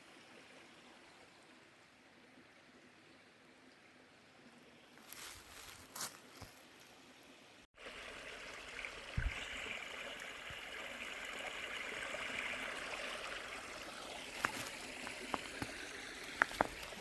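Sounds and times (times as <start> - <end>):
stream water rushing: 7.9 - 17.0.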